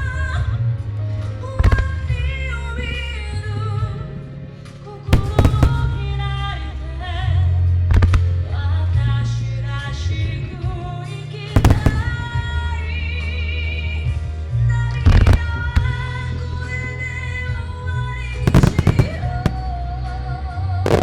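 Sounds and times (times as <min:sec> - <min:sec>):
fireworks bursting with bangs: 0:05.2 - 0:06.5, 0:11.6 - 0:12.8, 0:18.5 - 0:20.2
music with singing and heavy bass: 0:18.5 - 0:21.0.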